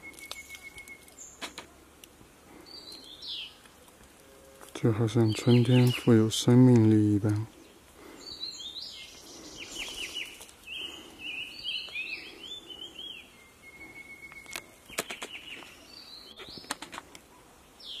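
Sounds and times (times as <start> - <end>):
birds chirping and whistling: 0.0 - 1.5, 5.1 - 6.2, 7.6 - 16.8
sharp clicks: 14.4 - 15.7, 16.4 - 17.2.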